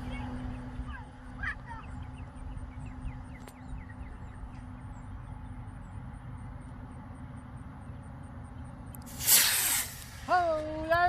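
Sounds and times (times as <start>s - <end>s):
wind rumbling on microphone: 0.0s - 5.7s.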